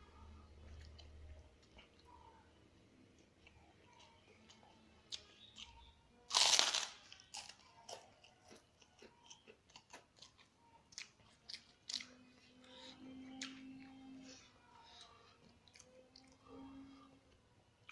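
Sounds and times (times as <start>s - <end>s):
low steady hum: 0.0s - 17.9s
wet chewing and smacking: 3.1s - 14.0s
crunchy bite: 6.3s - 8.0s.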